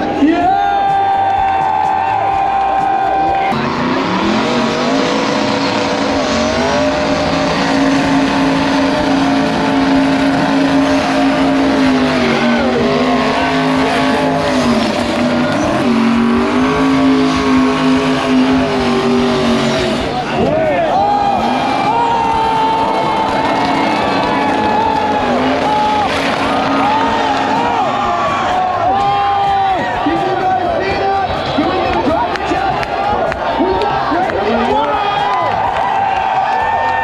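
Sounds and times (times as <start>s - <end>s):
tires spinning: 1.0s - 37.0s
engine at high revs: 3.2s - 29.0s.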